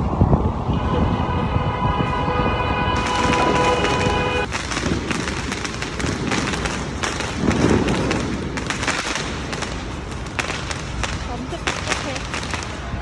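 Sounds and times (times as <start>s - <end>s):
fireworks popping and crackling: 2.9s - 13.0s.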